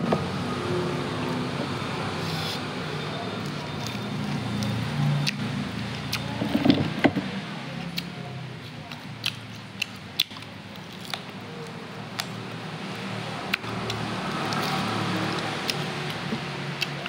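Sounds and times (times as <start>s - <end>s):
chewing with wet mouth clicks: 3.4s - 6.3s, 7.9s - 12.6s, 13.4s - 17.0s.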